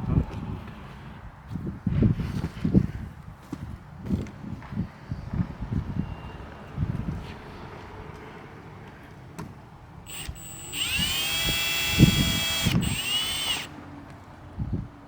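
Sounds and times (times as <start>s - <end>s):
cordless drill spinning: 10.1s - 13.8s.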